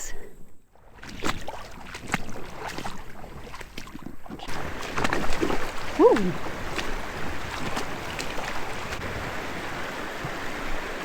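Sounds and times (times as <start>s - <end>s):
water: 0.0s - 11.0s.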